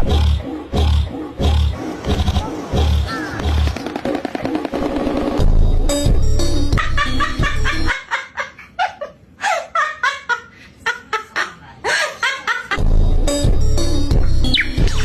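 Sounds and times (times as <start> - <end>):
music with heavy bass: 0.0 - 7.9, 12.8 - 15.0.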